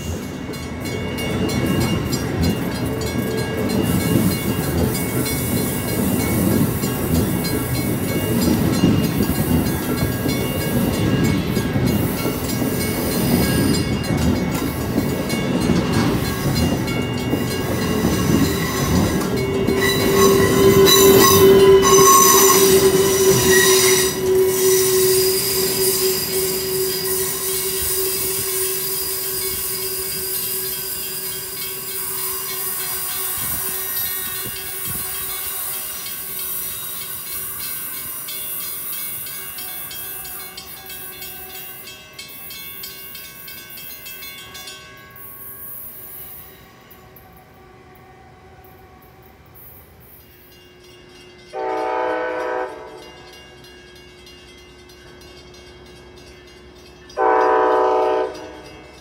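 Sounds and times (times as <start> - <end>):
electric locomotive high whine: 0.0 - 59.0
train wheels rumbling on rails: 0.0 - 59.0.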